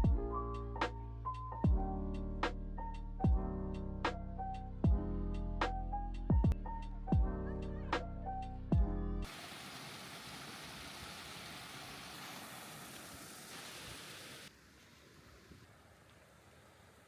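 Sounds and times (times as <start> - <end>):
outdoor background hiss: 9.3 - 17.0.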